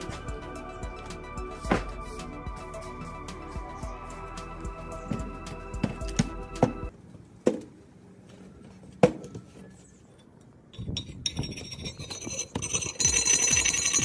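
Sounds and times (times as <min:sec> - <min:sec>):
steel rod scraping rust: 0:10.8 - 0:14.0.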